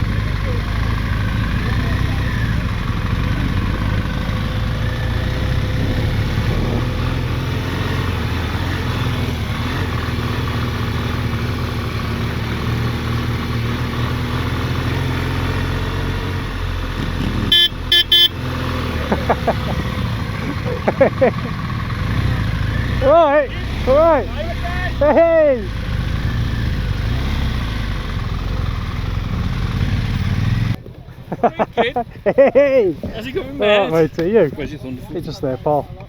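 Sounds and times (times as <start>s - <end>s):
motorcycle engine running: 0.0s - 36.0s
horn toots: 17.0s - 18.9s.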